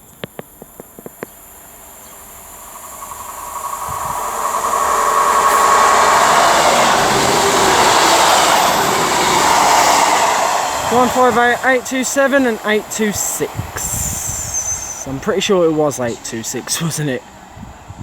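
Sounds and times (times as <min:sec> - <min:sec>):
sharp clicks: 0:00.0 - 0:01.4
diesel train arriving: 0:00.0 - 0:18.0.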